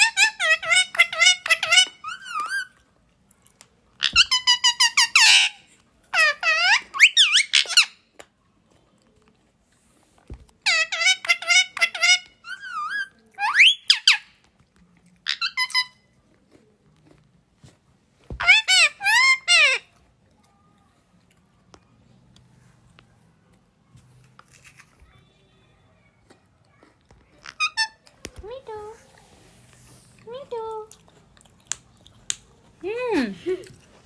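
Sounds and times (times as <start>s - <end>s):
parrot squeaky whistles: 6.2s - 7.9s, 10.7s - 14.3s.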